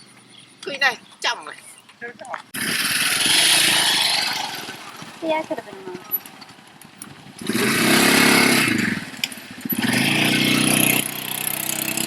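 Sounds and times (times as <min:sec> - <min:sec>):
small engine revving: 0:02.6 - 0:06.4, 0:07.3 - 0:12.0.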